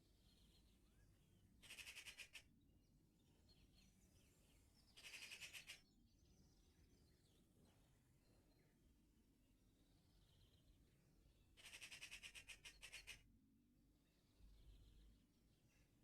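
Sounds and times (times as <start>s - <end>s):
faint birdsong: 0.0s - 16.0s
harsh rattling bird calls: 1.6s - 2.5s, 4.8s - 6.0s, 11.4s - 13.3s.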